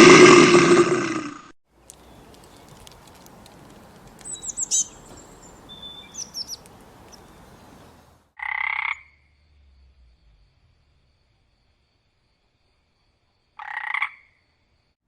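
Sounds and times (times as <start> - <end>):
steady outdoor hiss: 0.0 - 15.0
quick high bird chirps: 3.8 - 8.2.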